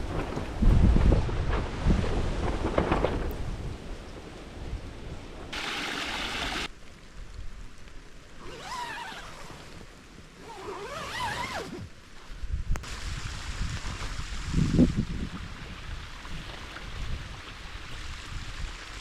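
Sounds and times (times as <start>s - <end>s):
wind buffeting microphone: 0.0s - 5.4s, 12.4s - 18.8s.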